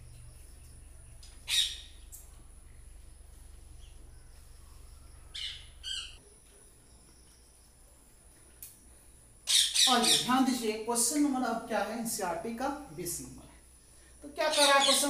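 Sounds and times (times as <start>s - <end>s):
bird squawking calls: 1.5s - 1.9s, 5.2s - 6.2s.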